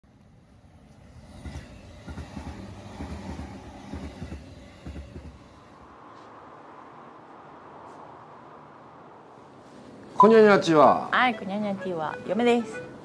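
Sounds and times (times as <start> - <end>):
train low rumble: 0.1 - 6.6
train wheels clattering over joints: 1.2 - 5.7.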